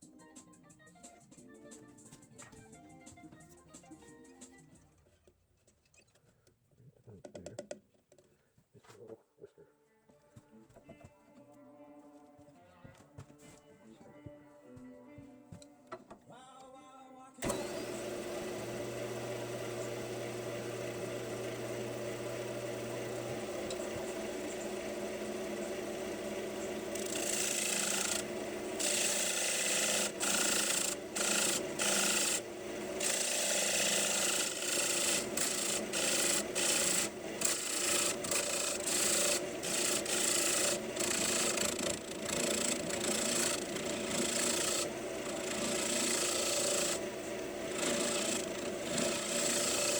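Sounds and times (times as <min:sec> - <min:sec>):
tool rubbing spinning wood: 0:17.4 - 0:49.9
wood lathe humming: 0:17.4 - 0:49.9.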